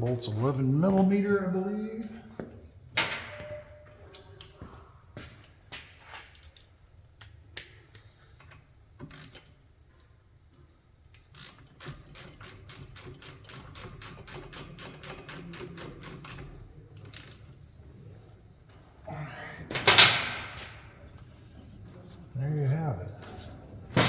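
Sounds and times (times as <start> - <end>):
socket ratchet clicking: 11.2 - 16.4.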